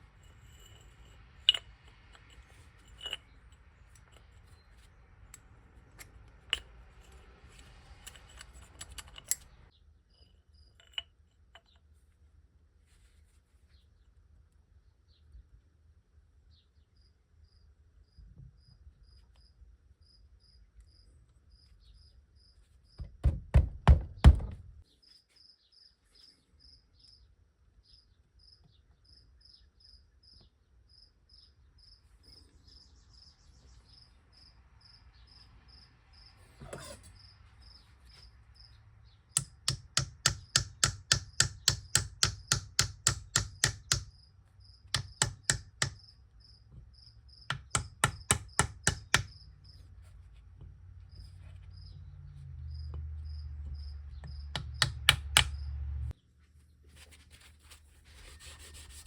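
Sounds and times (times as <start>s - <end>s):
loud knocks: 23.0s - 24.7s
cricket chirping: 46.0s - 47.5s, 52.7s - 54.5s.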